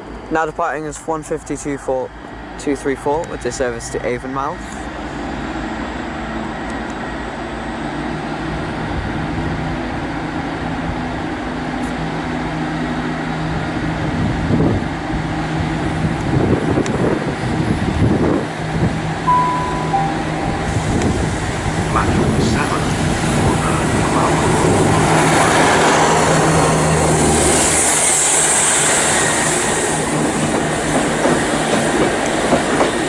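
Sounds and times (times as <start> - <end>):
diesel train engine drone: 0.0 - 33.0
two-note tone: 19.3 - 21.1.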